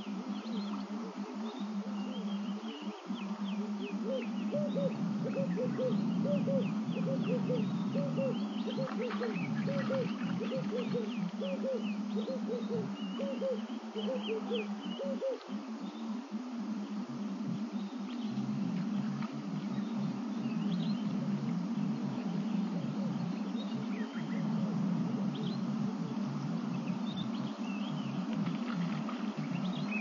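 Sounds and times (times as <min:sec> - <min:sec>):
steady low hum: 0:00.0 - 0:30.0
bird hooting: 0:00.9 - 0:17.8.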